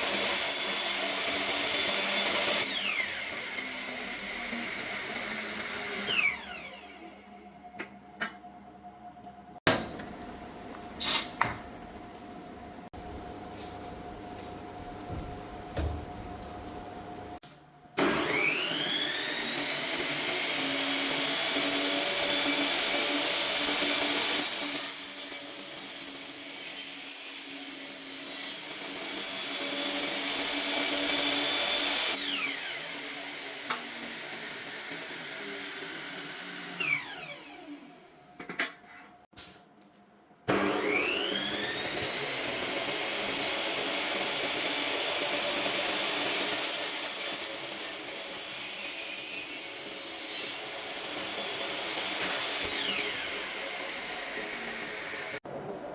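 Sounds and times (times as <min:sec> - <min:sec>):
power tool motor running: 0:18.0 - 0:26.7, 0:40.8 - 0:55.4.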